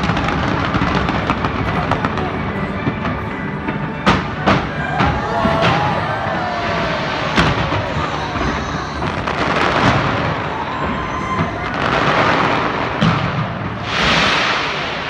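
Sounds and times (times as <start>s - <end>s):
fireworks bangs: 5.5s - 15.0s
fireworks crackling: 6.9s - 15.0s.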